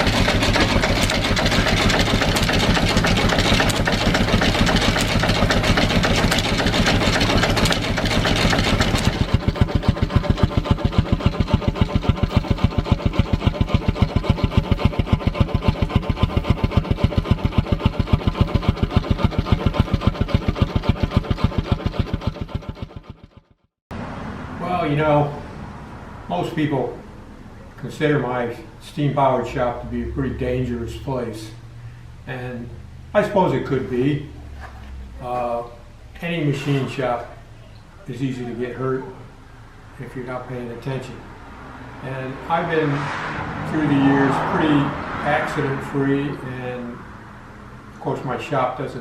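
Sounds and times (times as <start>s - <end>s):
dense mechanical clatter: 0.0s - 23.6s
stationary engine running: 0.0s - 24.1s, 41.4s - 47.9s.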